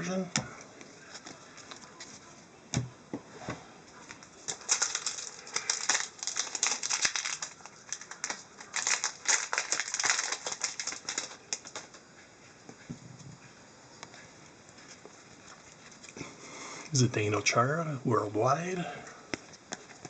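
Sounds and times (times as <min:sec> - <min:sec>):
trading cards clicking and rustling: 0:04.1 - 0:12.0.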